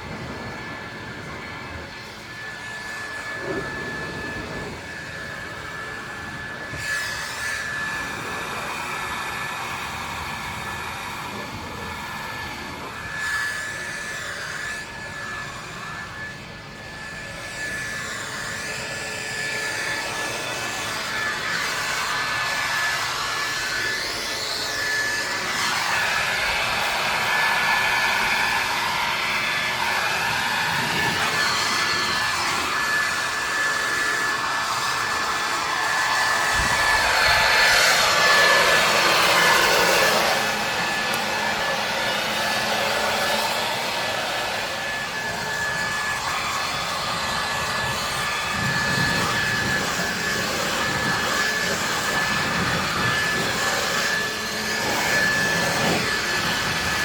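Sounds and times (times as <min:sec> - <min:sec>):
high whine: 0:00.0 - 0:57.0
pressure washer water jet hissing: 0:17.5 - 0:57.0.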